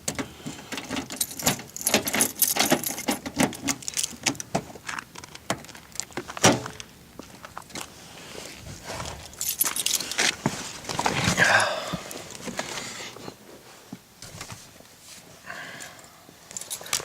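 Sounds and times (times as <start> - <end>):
car keys jangling: 0.8 - 4.5, 9.2 - 10.3, 16.0 - 17.0.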